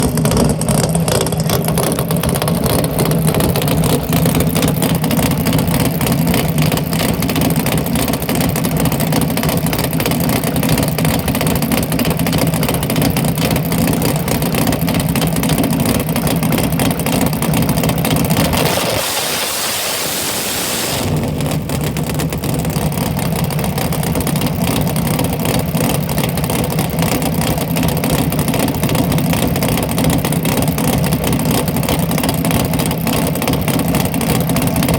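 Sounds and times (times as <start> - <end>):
drag car engine idling: 0.0 - 34.9
rushing hiss: 18.5 - 21.5.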